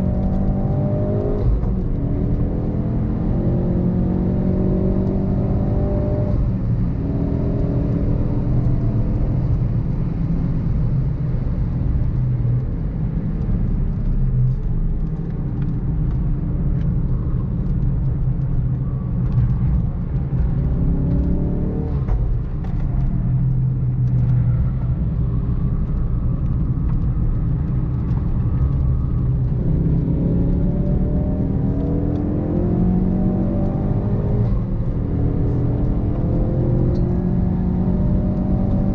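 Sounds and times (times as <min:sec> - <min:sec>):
car engine revving: 0:00.0 - 0:10.1, 0:18.9 - 0:26.0, 0:26.6 - 0:38.9
road noise rumble: 0:00.0 - 0:38.9.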